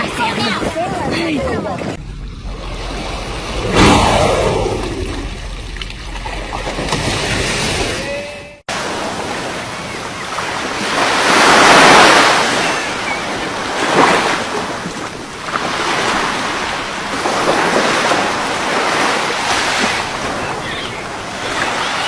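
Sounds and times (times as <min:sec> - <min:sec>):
sea waves washing: 0:08.7 - 0:22.0.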